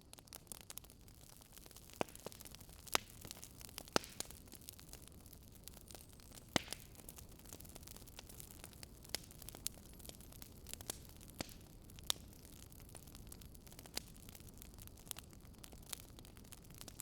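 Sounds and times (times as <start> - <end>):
faint wood fire crackling: 0.0 - 17.0.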